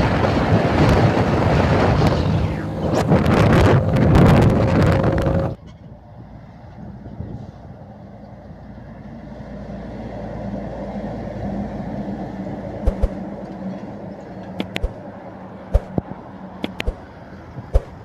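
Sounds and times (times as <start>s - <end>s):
truck engine drone: 0.0s - 18.0s
sharp knocks or clicks: 12.8s - 13.2s, 14.6s - 15.0s, 15.7s - 17.0s.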